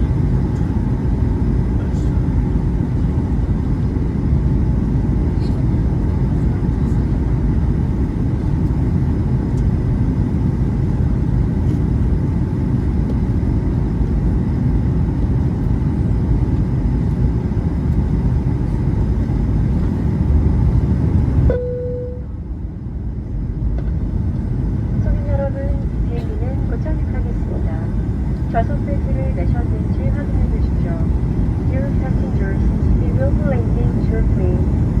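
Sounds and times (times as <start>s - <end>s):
airliner cabin rumble: 0.0s - 35.0s
single-tone chime: 21.5s - 22.3s.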